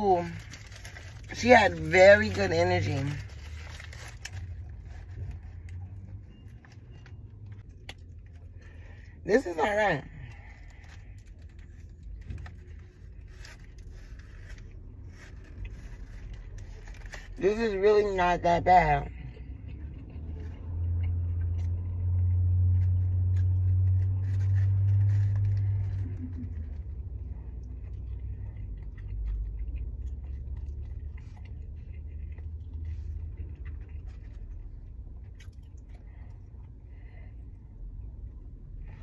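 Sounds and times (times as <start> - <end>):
person chewing a burger: 0.0 - 18.4, 19.0 - 39.0
paper wrapper rustling: 0.1 - 5.6, 10.6 - 17.4
low rumble: 19.0 - 39.0.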